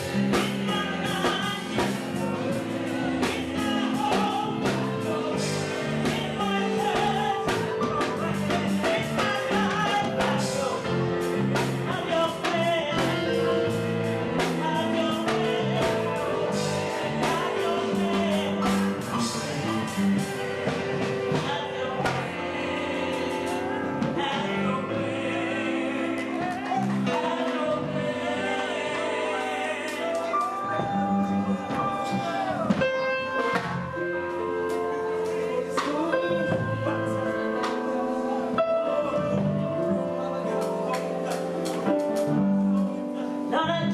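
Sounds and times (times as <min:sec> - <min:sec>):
gospel singing: 0:00.0 - 0:43.9
instrumental backing with bass line: 0:00.0 - 0:43.9.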